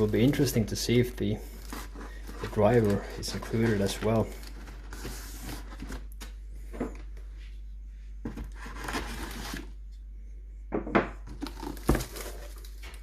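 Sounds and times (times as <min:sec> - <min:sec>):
packaging rustling and tearing: 0:00.0 - 0:06.3, 0:08.3 - 0:09.8, 0:11.3 - 0:13.0.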